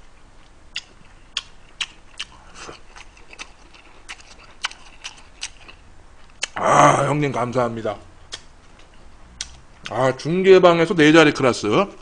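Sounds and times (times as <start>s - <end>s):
person chewing with wet clicks: 0.4s - 6.6s, 8.3s - 10.0s.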